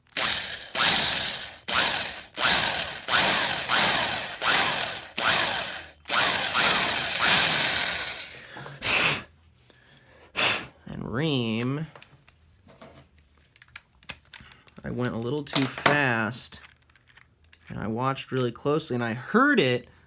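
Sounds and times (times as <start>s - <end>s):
electric drill whining: 0.0s - 8.4s.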